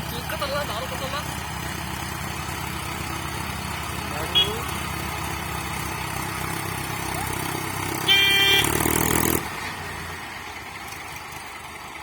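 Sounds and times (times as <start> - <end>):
tractor engines under load: 0.0 - 12.0
vehicle horn honking: 4.3 - 4.7, 8.0 - 8.9.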